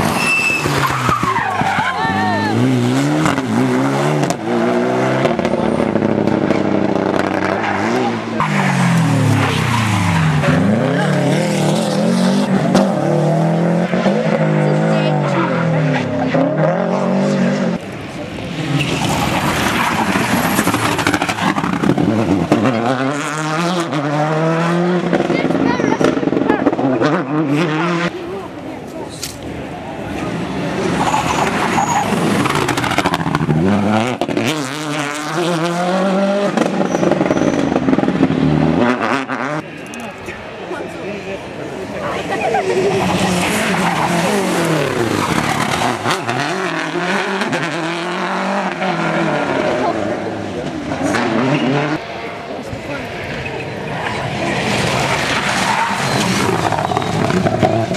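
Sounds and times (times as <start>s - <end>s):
rally car engine at high revs: 0.0s - 28.2s, 30.1s - 40.1s, 40.8s - 57.9s.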